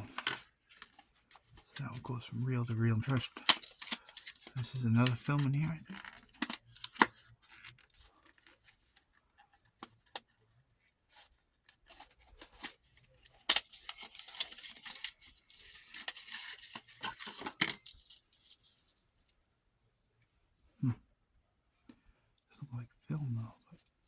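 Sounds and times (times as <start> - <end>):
scratchy rustling: 13.7 - 18.8.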